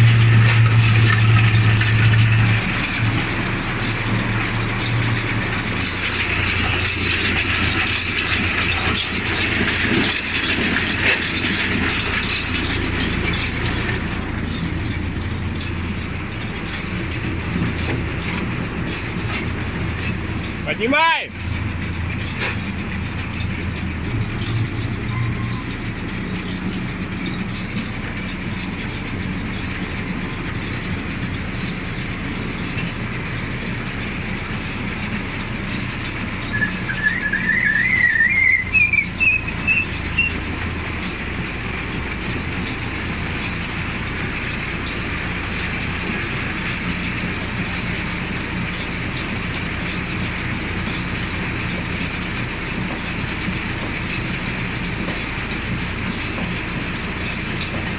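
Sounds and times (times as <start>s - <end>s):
round baler running: 0.0s - 57.9s
warbling squeal rising in pitch: 36.4s - 40.4s.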